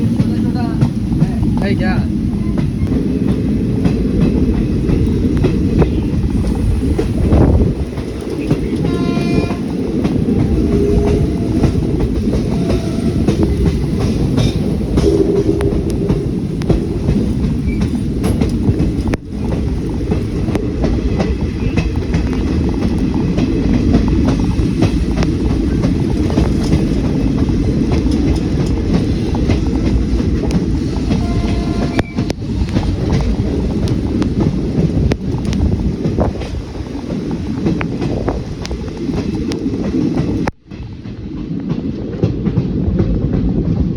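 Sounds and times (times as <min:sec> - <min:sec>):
wheels clicking over rail joints: 0:00.0 - 0:43.6
train rumbling on track: 0:00.0 - 0:43.9
train horn: 0:08.8 - 0:09.8, 0:10.4 - 0:13.6, 0:15.0 - 0:16.4, 0:31.0 - 0:32.4.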